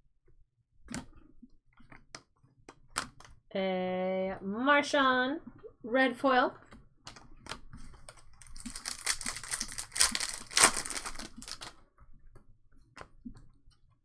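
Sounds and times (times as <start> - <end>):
cards and foil pack crackling: 8.1 - 11.7.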